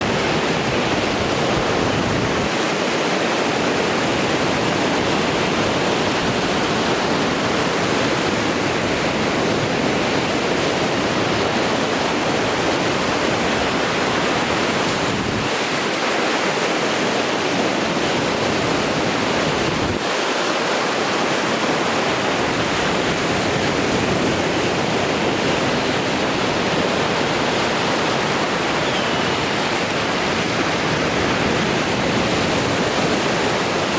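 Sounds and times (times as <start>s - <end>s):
surf breaking on shore: 0.0s - 33.9s.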